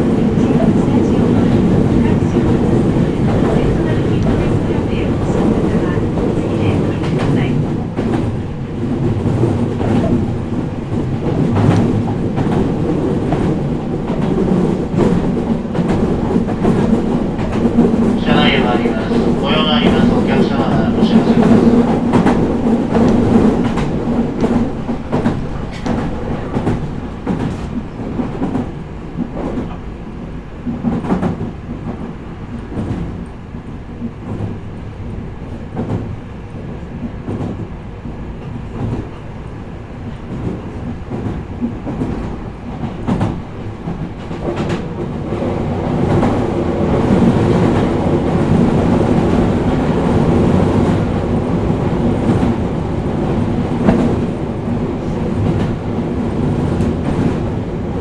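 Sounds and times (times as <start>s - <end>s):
train cabin rumble: 0.0s - 58.0s.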